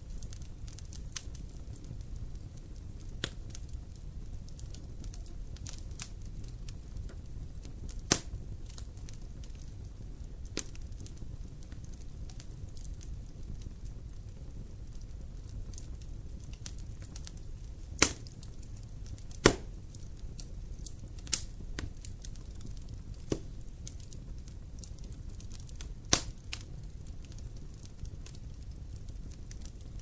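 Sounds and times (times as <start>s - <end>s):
fire pops: 0.0s - 30.0s
low rumble of flames: 0.0s - 30.0s
wood fire crackling: 0.0s - 30.0s.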